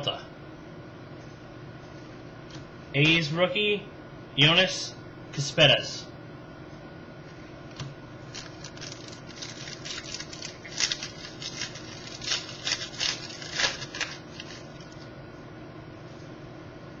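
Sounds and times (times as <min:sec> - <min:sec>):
faint steady hum: 0:00.0 - 0:17.0
cards rustling and clicking: 0:08.3 - 0:15.0.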